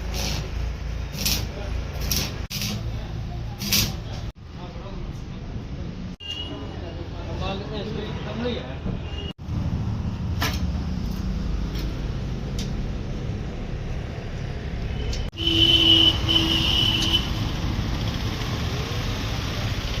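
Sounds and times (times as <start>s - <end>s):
vehicle engine rumbling: 9.4s - 20.0s.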